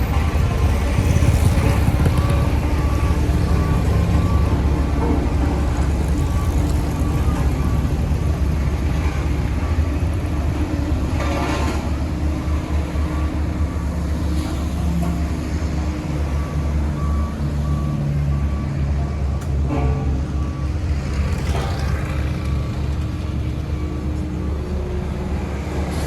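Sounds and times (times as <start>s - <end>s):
diesel engine rumble: 0.0s - 26.0s
reversing alarm beeping: 0.0s - 26.0s.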